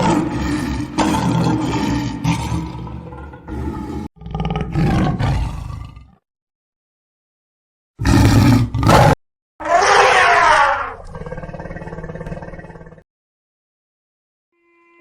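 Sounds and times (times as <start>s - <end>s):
large animal roaring: 0.0s - 6.2s, 8.0s - 13.0s.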